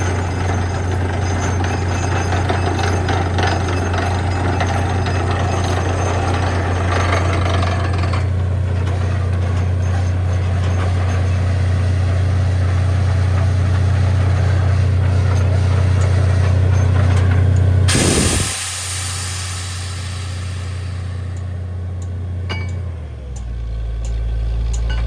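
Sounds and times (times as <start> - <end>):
drilling machine engine humming: 0.0 - 25.0
bright hiss: 17.9 - 21.4.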